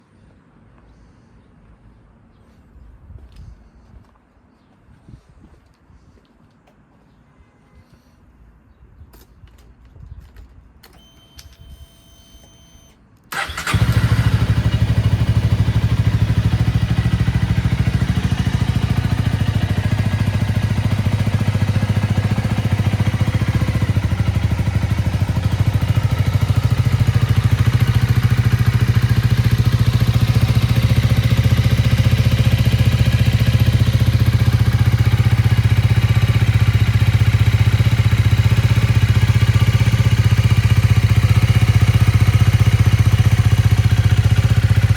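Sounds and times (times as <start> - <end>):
starter cranking: 13.3 - 14.3
motorcycle engine idling: 13.3 - 44.9.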